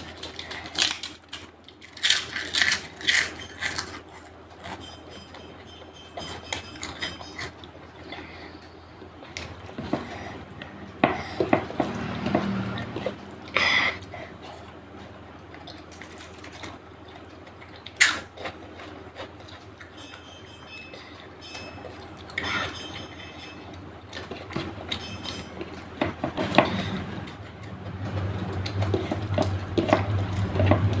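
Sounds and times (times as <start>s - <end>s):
sharp crack while eating: 0.0s - 4.4s, 15.6s - 19.7s
wet chewing of food: 6.9s - 20.0s, 24.1s - 31.0s.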